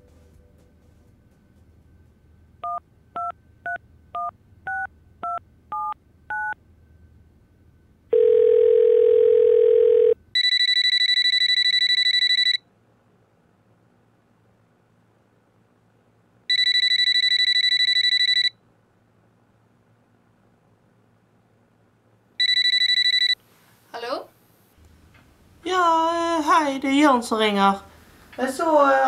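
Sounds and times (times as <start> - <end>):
steady ringing tone: 8.1 - 12.6, 16.5 - 18.6, 22.4 - 23.4
telephone keypad tones: 8.1 - 12.6, 16.5 - 18.5, 22.4 - 23.4.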